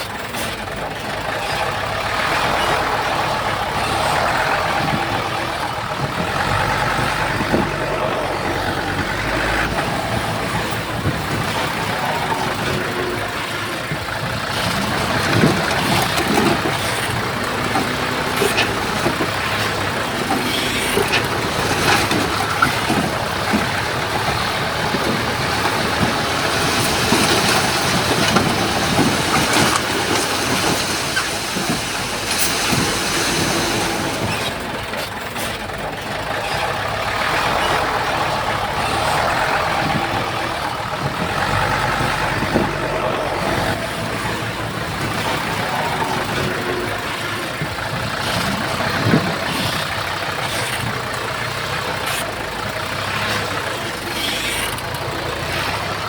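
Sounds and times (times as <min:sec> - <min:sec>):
heavy diesel engines running: 0:00.0 - 0:56.0.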